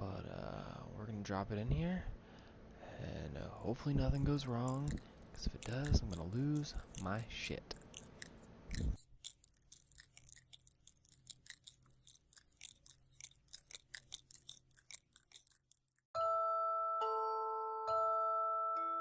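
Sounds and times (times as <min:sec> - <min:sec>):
lizard crunching a spider: 0:03.4 - 0:16.1
glockenspiel-like music tune: 0:16.2 - 0:19.0.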